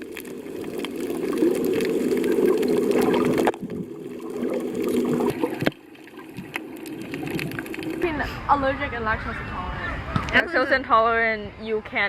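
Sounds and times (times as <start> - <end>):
muffled sea water sloshing: 0.0 - 10.4.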